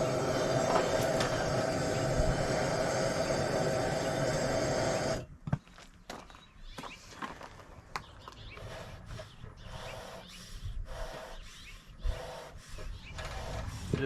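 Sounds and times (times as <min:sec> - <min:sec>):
bellows puffs of air: 0:00.0 - 0:05.3, 0:08.6 - 0:14.0.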